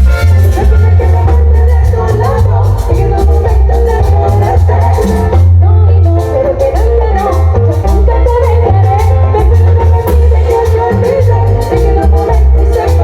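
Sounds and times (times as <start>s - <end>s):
latin dance band playing: 0.0s - 13.0s.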